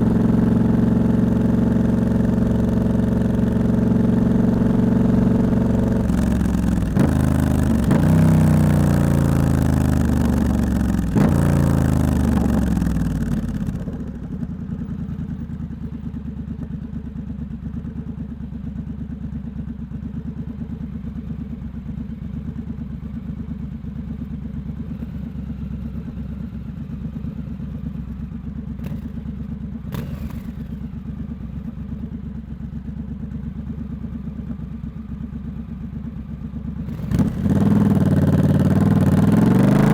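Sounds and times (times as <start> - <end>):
motorcycle engine revving: 0.0 - 14.2, 28.7 - 31.1, 36.8 - 39.9
motorcycle engine idling: 0.0 - 39.9.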